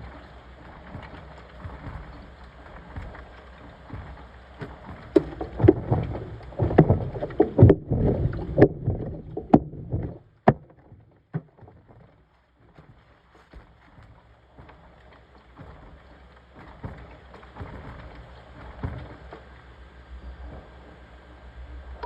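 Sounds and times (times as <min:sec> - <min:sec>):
laundry sloshing in washing machine: 0:00.0 - 0:19.6
washing machine knocks: 0:05.1 - 0:11.7.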